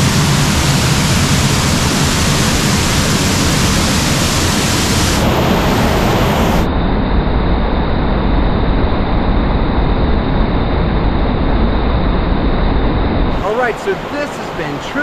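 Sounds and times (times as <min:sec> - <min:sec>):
waterfall roaring: 0:00.0 - 0:06.7, 0:13.3 - 0:15.0.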